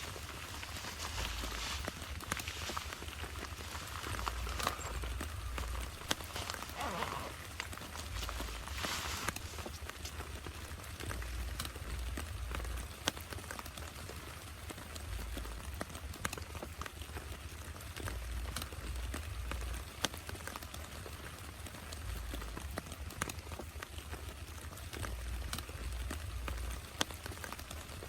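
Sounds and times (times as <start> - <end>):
low rumbles: 0.0 - 13.1
rain falling: 0.0 - 28.0
raindrops ticking on a surface: 0.0 - 28.0.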